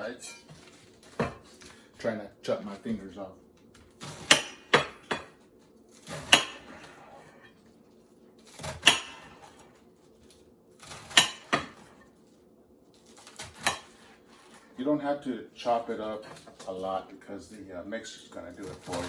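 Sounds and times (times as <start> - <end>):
knife chopping on cutting board: 0.5 - 1.8, 3.8 - 5.4, 6.0 - 7.3, 8.5 - 9.7, 10.8 - 12.0, 13.2 - 14.6.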